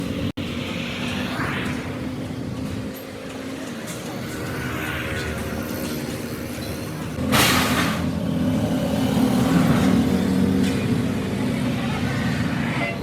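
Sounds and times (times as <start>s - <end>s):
short loud hiss: 7.3s - 8.0s.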